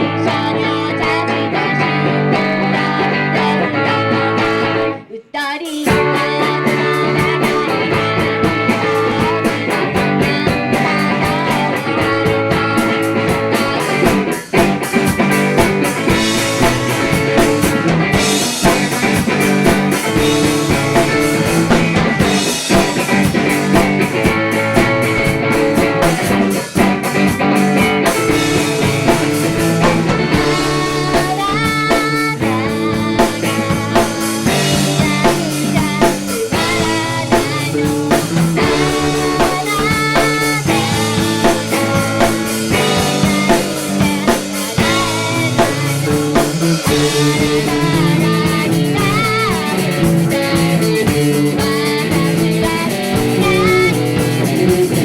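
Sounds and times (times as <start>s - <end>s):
band playing live: 0.0s - 5.1s, 5.8s - 55.0s
drum kit: 0.0s - 5.1s, 5.7s - 55.0s
electric guitar: 0.0s - 55.0s
woman singing: 0.0s - 55.0s.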